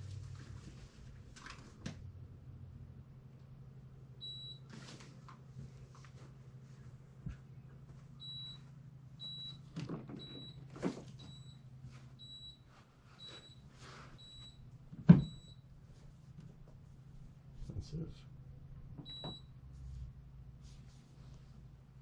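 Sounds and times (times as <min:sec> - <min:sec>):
low steady hum: 0:00.0 - 0:22.0
dehumidifier beeping: 0:03.2 - 0:17.5, 0:18.7 - 0:19.9.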